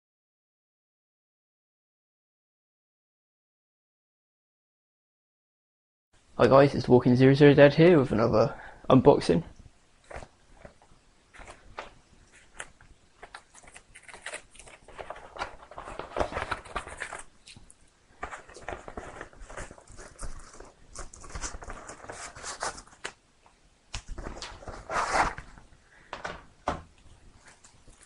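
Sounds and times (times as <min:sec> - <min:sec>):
packaging rustling and crinkling: 0:10.0 - 0:23.2, 0:24.0 - 0:26.4.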